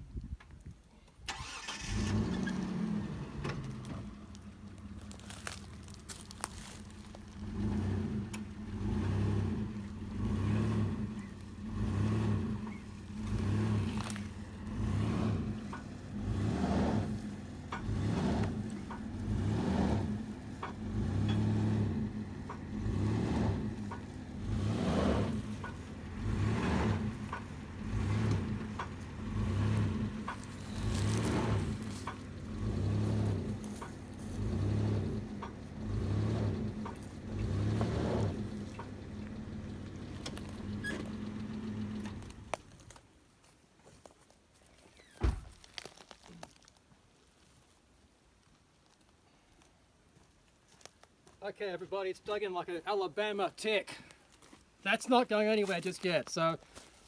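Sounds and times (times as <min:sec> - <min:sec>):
vehicle engine surging and straining: 0:01.3 - 0:43.0.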